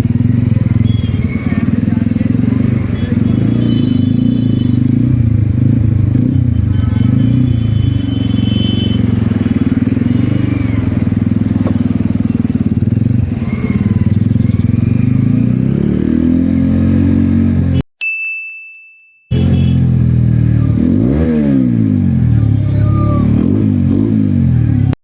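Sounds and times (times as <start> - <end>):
motorcycle engine running: 0.0 - 17.8, 19.3 - 24.9.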